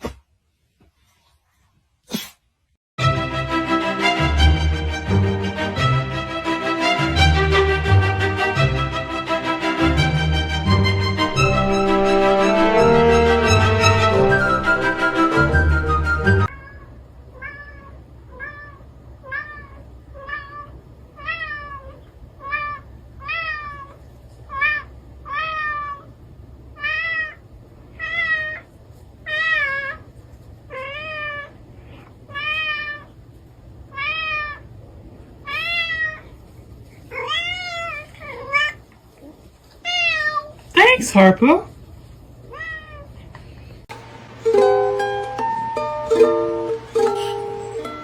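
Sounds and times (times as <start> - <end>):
cat meowing: 16.5 - 26.1, 37.1 - 38.8, 39.8 - 40.6, 42.5 - 43.2.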